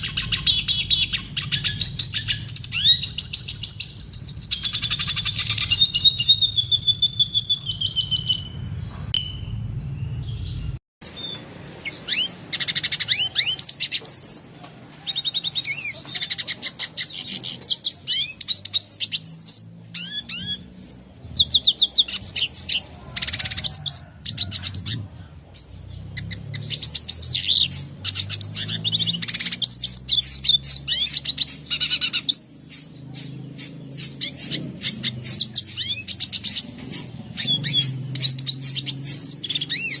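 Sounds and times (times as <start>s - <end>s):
bird twittering chirps and trills: 0.0s - 40.0s.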